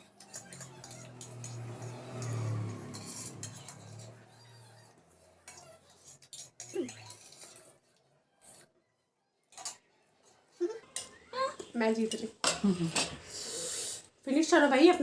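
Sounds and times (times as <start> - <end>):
cutlery clinking on plates: 0.0 - 4.2, 5.4 - 7.7, 9.5 - 9.9.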